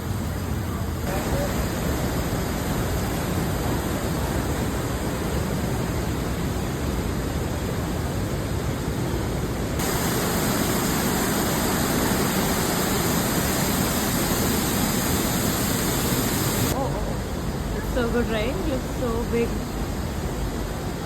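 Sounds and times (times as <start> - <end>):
waterfall rushing: 1.0 - 9.0, 9.6 - 21.0.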